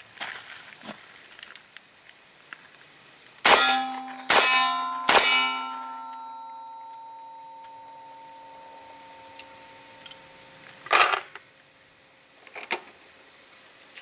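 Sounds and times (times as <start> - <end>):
sharp metallic clangs ringing: 3.4 - 11.4.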